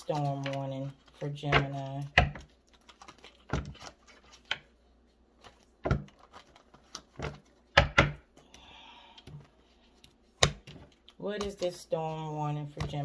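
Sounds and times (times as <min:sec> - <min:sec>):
cards being shuffled: 0:00.0 - 0:04.7, 0:05.4 - 0:07.8.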